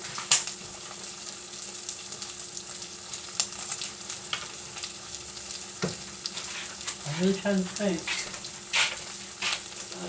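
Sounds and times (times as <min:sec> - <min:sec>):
grease popping and crackling: 0:00.0 - 0:01.0, 0:03.3 - 0:10.0
meat sizzling in a pan: 0:00.0 - 0:10.0.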